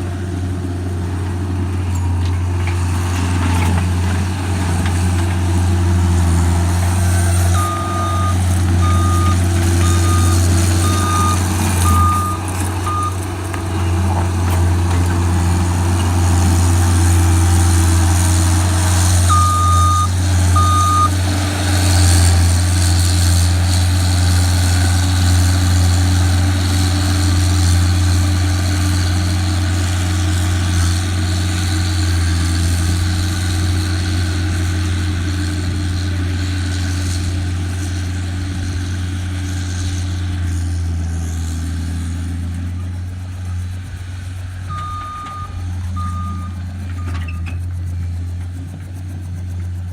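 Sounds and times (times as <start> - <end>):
diesel engine running: 0.0 - 49.9
backup alarm beeping: 7.6 - 13.2, 19.3 - 21.1, 44.7 - 47.2.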